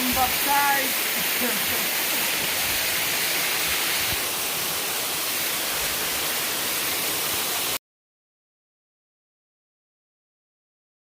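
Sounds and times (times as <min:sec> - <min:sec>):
waterfall rushing: 0:00.0 - 0:07.8.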